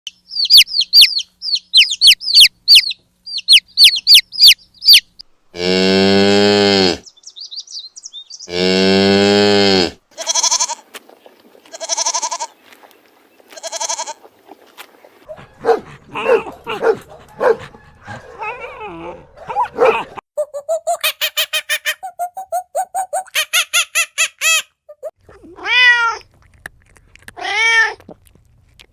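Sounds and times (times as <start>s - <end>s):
cow mooing: 5.6s - 7.0s, 8.5s - 10.6s.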